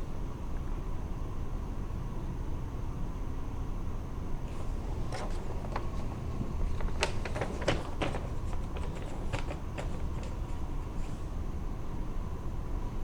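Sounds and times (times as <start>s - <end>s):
sharp clicks and knocks: 4.5s - 11.1s.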